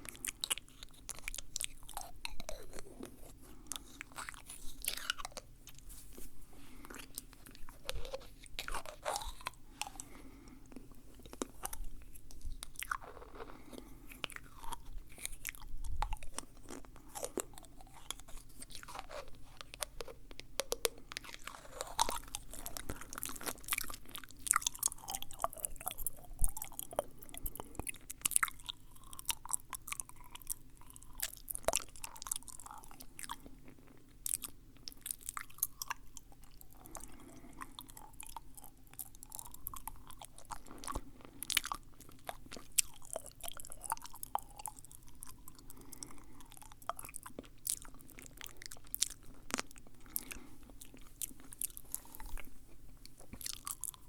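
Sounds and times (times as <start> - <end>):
mouth clicks and smacks: 6.7 - 33.5.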